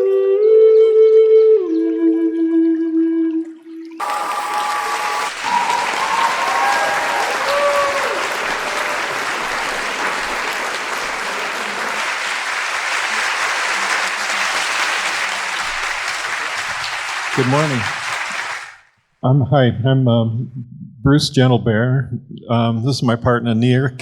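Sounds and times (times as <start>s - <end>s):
whoops over clapping: 4.0s - 18.8s
audience applauding: 4.0s - 18.9s.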